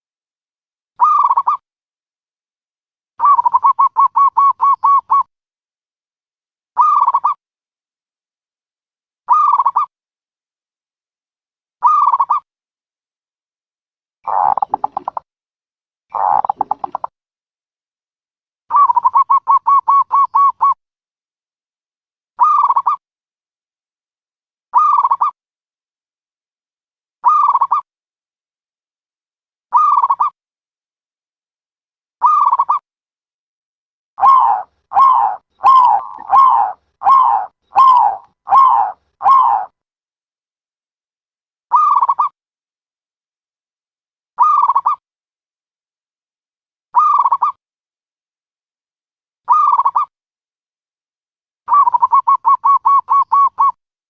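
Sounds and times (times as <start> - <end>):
dove cooing: 34.2 - 39.7.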